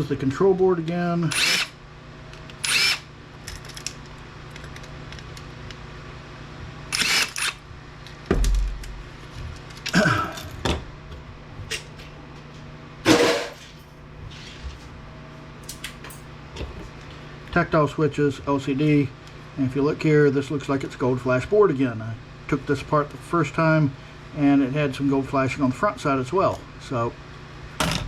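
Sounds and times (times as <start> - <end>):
steady low hum: 0.0 - 28.0
cordless drill whirring: 1.3 - 1.8, 2.6 - 3.1, 6.9 - 7.6.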